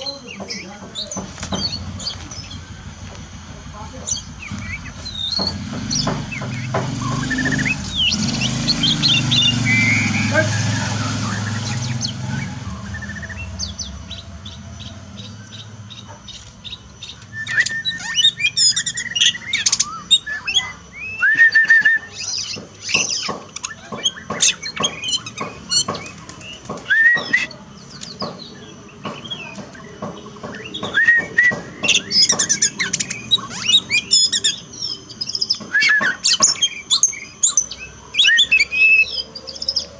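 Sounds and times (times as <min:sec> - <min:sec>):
songbird singing: 0:00.0 - 0:39.9
low rumble: 0:01.1 - 0:17.7.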